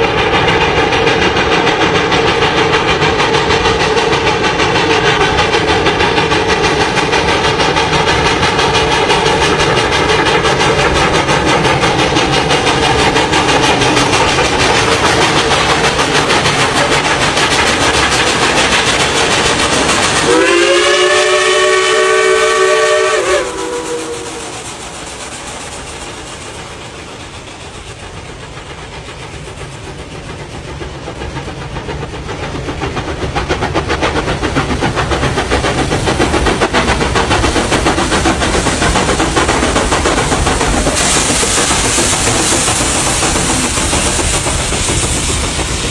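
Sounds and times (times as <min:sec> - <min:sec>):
steam train running: 0:00.0 - 0:45.9
steam whistle chord: 0:20.2 - 0:24.6.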